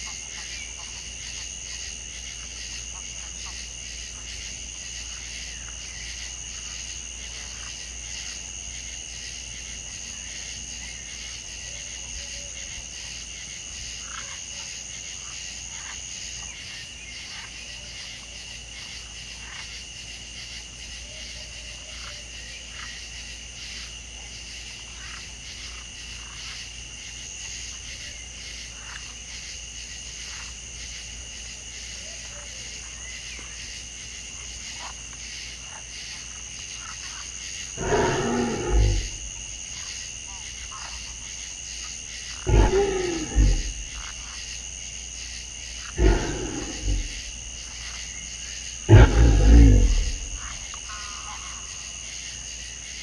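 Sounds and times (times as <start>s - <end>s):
insect trill: 0.0s - 53.0s
frogs calling: 45.6s - 52.2s.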